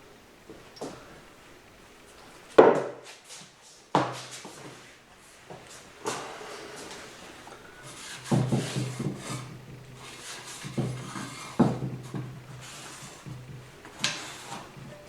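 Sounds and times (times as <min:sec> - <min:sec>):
parts rubbing and scraping: 0:04.3 - 0:15.0.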